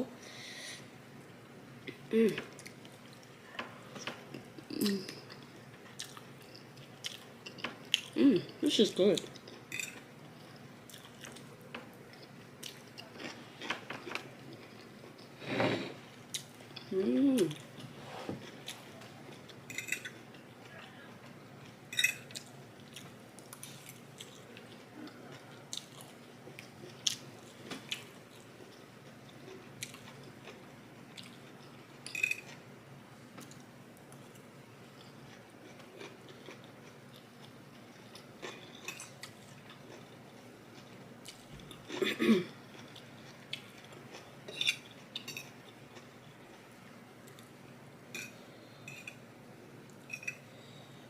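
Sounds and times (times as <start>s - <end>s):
person chewing food: 4.0s - 8.2s, 9.3s - 15.4s, 21.6s - 31.8s, 33.4s - 42.0s.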